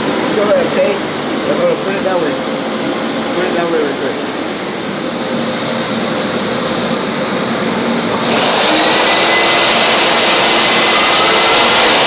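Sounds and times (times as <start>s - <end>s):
car wash equipment rushing hiss: 8.1s - 12.0s.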